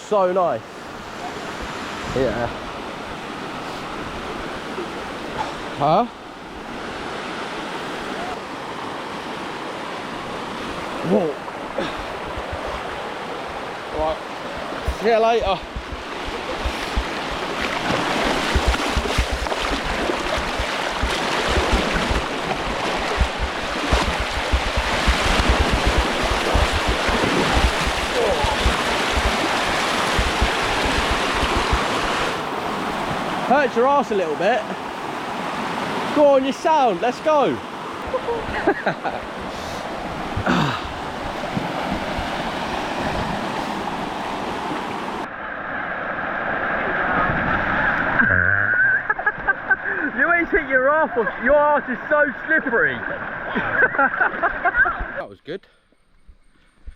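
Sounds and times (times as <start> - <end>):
waterfall stream rushing over rock: 13.0 - 38.2
person calling out: 28.1 - 28.7.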